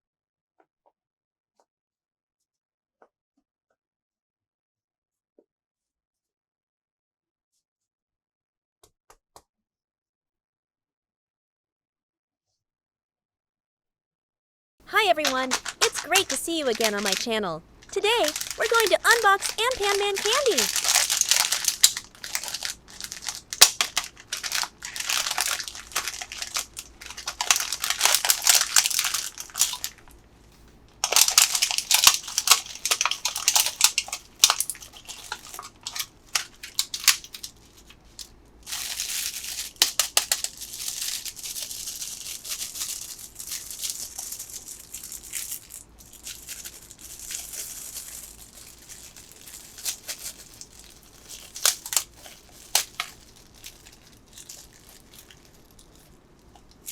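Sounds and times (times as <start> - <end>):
candy wrappers crinkling: 14.9 - 56.9.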